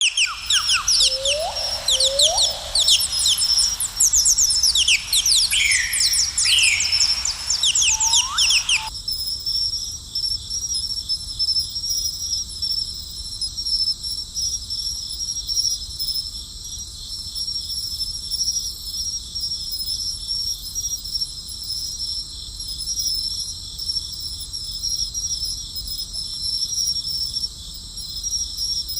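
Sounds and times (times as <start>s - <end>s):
birds chirping: 0.0s - 8.9s
high-pitched insect chorus: 0.0s - 8.9s.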